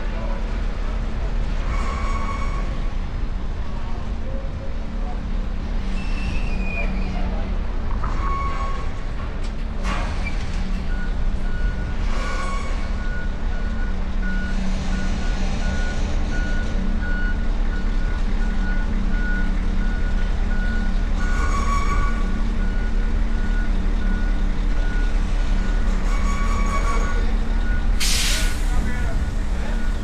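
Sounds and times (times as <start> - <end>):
truck reversing alarm beeping: 10.8 - 30.0
diesel engines idling: 12.9 - 30.0.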